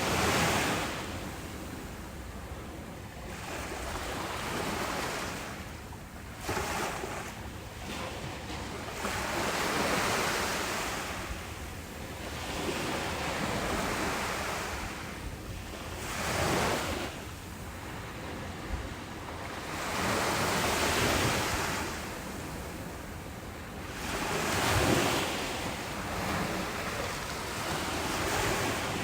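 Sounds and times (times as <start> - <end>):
ocean waves breaking on beach: 0.0 - 29.0.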